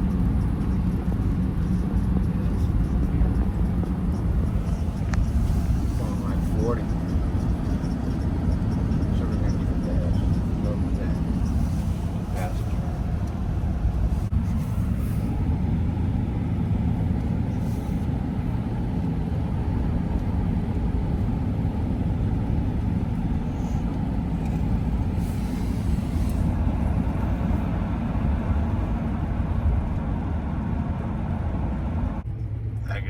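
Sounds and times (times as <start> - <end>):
road and engine rumble in cabin: 0.0 - 33.0.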